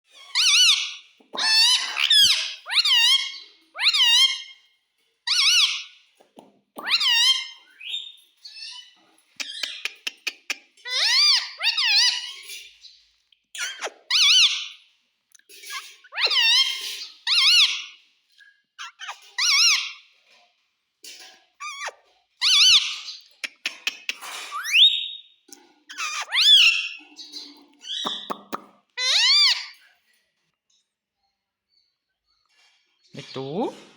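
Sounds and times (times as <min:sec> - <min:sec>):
parrot calling: 0:00.2 - 0:04.6, 0:05.3 - 0:06.0, 0:06.8 - 0:08.0, 0:08.7 - 0:12.5, 0:13.6 - 0:14.7, 0:15.7 - 0:17.9, 0:18.8 - 0:20.0, 0:21.6 - 0:25.2, 0:25.9 - 0:29.8.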